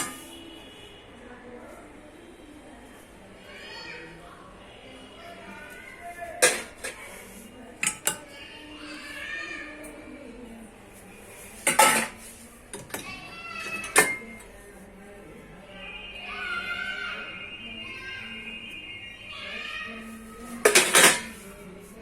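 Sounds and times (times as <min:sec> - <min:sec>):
dishes and cutlery clinking: 0:00.0 - 0:00.3, 0:06.4 - 0:07.1, 0:07.8 - 0:08.3, 0:11.6 - 0:14.5, 0:20.6 - 0:21.4.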